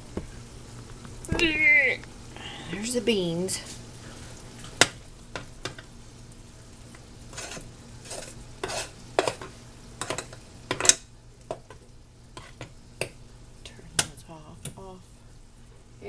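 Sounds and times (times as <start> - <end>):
faint sizzle: 0.0 - 16.0
spoon stirring and scraping beans: 7.0 - 13.2
utensil clicking against pan: 7.4 - 11.8.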